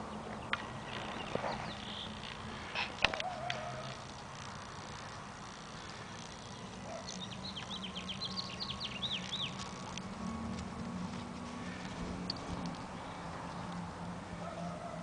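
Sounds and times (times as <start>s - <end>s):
small bird chirping: 0.0s - 2.5s, 3.2s - 10.1s
low steady hum: 0.0s - 15.0s.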